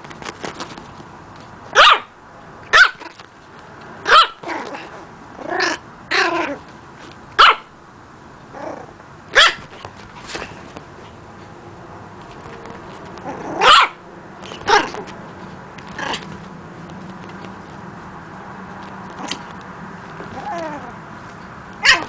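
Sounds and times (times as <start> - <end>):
puppy barking: 1.7 - 3.2, 4.0 - 6.6, 7.4 - 7.7, 9.3 - 9.8, 13.4 - 14.0, 14.6 - 15.1, 21.8 - 22.0.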